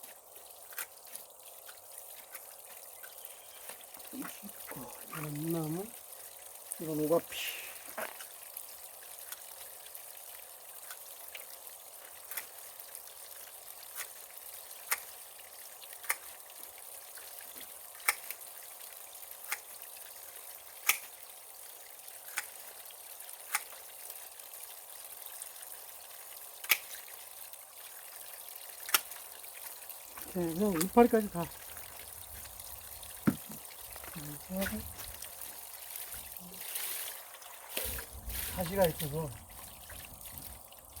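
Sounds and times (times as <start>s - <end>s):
running water trickling: 0.0s - 41.0s.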